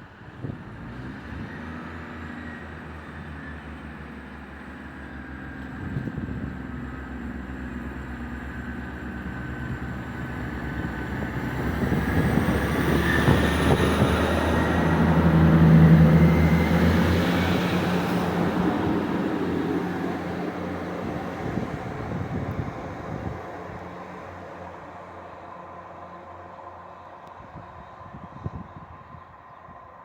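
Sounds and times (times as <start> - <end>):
diesel train engines: 0.0 - 30.0.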